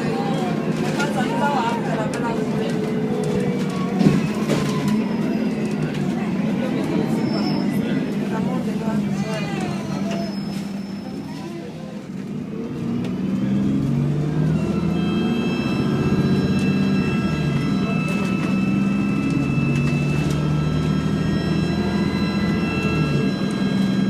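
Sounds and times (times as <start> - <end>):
bus engine drone: 0.0 - 24.0
high-pitched whine: 14.4 - 24.0.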